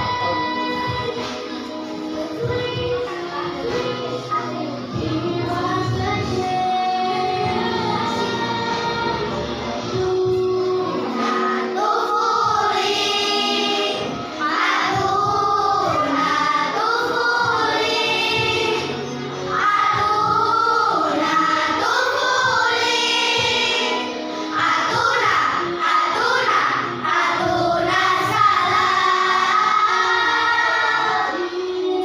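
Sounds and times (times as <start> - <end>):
choir singing: 2.4 - 32.0.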